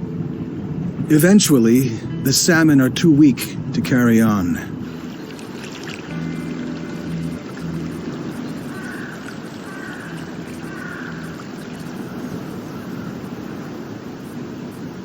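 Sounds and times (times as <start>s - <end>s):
river flowing over gravel: 3.8s - 15.0s.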